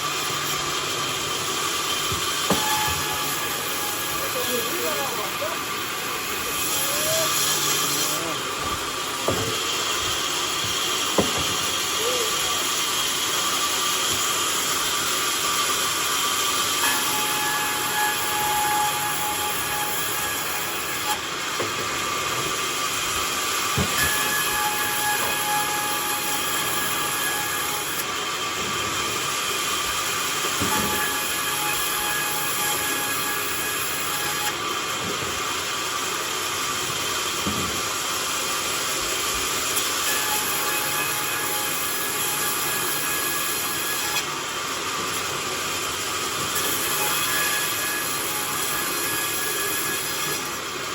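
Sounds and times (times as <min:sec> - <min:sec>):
sawmill sawing a log: 0:00.0 - 0:50.9.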